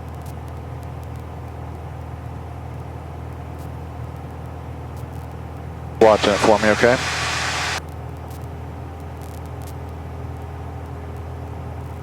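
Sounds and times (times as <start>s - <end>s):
aircraft engine drone in cabin: 6.0s - 7.8s.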